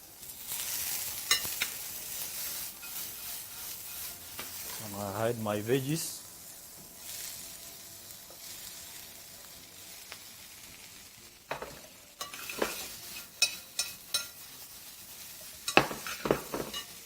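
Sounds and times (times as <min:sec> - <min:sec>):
vegetables sizzling in a pan: 0:00.0 - 0:17.0
stirring knocks and scrapes in a pan: 0:11.5 - 0:14.4, 0:15.5 - 0:17.0.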